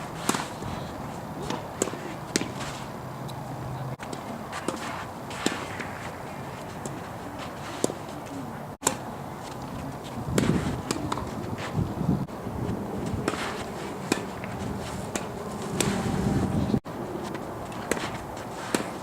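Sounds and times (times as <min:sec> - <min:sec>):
tennis balls struck by rackets: 0:00.0 - 0:03.4, 0:04.0 - 0:11.8, 0:13.0 - 0:16.0, 0:17.2 - 0:19.0
wind noise: 0:09.6 - 0:18.5.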